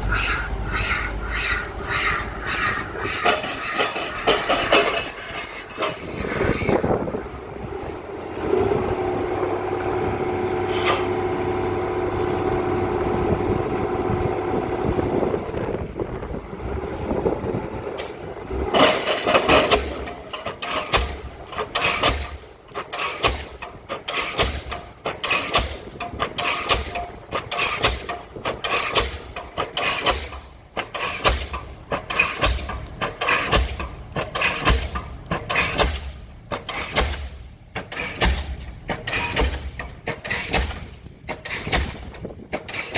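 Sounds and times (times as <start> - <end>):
pile hammer blows: 18.7 - 42.9.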